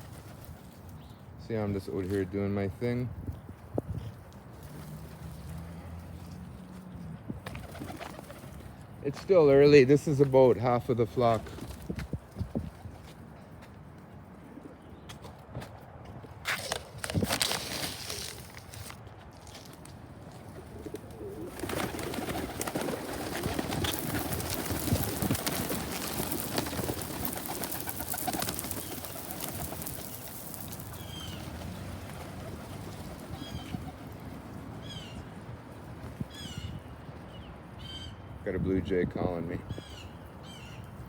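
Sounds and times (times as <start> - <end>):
pigeons cooing: 20.5 - 35.3
blue jay calls: 27.2 - 31.6, 33.3 - 34.0, 34.8 - 35.4, 36.3 - 38.3, 39.7 - 41.0.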